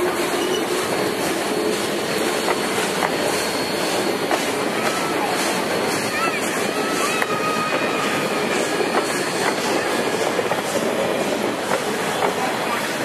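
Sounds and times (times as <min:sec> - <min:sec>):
train wheels rumbling on track: 0:00.0 - 0:13.0
faint thin wheel squeal: 0:00.4 - 0:00.7.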